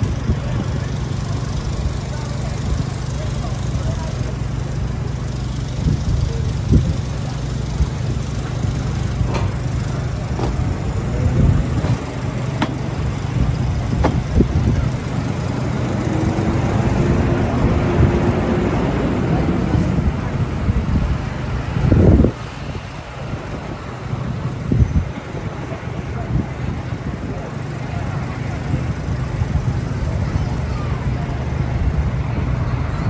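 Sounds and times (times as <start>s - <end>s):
low traffic rumble: 0.0s - 33.0s
sharp clicks and knocks: 9.2s - 10.8s, 11.7s - 14.5s.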